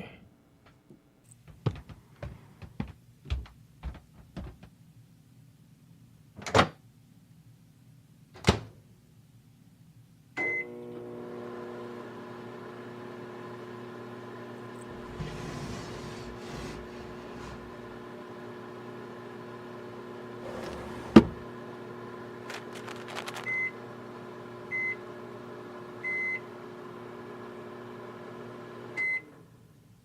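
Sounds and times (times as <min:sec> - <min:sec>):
microwave beep: 0:10.4 - 0:10.8, 0:23.4 - 0:23.8, 0:24.7 - 0:25.1, 0:26.0 - 0:26.5, 0:29.0 - 0:29.4
microwave oven humming: 0:10.4 - 0:29.8.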